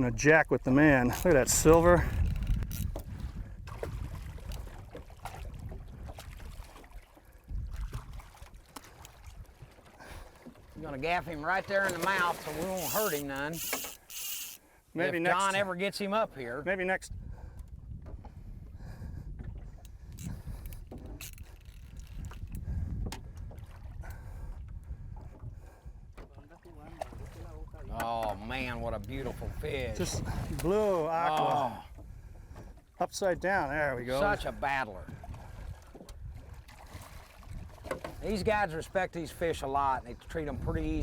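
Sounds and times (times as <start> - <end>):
wind and water rumble: 0.0 - 41.0
water splashes: 3.1 - 14.6, 26.3 - 32.0, 34.0 - 38.6.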